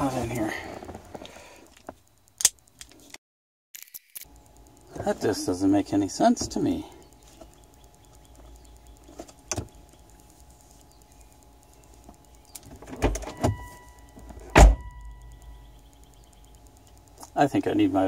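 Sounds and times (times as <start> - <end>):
steady electronic tone: 13.2 - 17.5.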